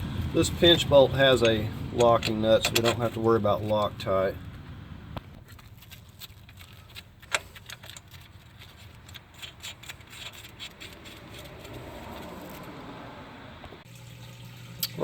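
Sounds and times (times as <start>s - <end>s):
metal tools clicking and clinking: 1.4s - 3.9s.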